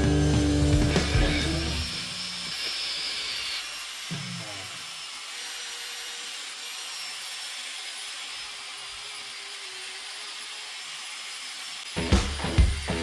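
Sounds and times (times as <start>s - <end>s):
loud music with a beat: 0.0s - 1.8s, 12.0s - 13.0s
angle grinder wire brush grinding: 0.0s - 13.0s.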